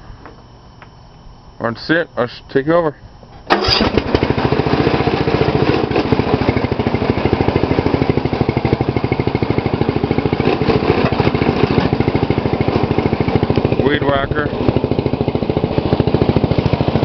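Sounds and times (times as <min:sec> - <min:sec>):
lawn tractor engine running: 0:03.4 - 0:17.0.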